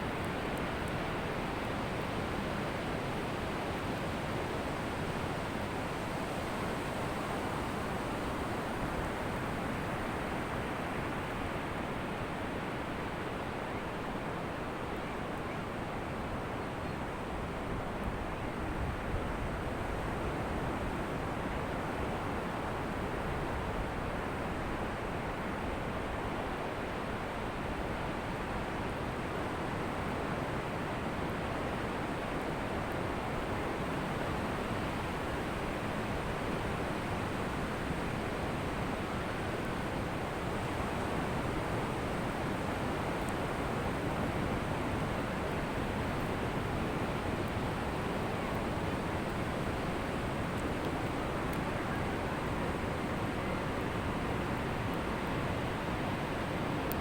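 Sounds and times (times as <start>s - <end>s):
ocean surf on beach: 27.5s - 57.0s.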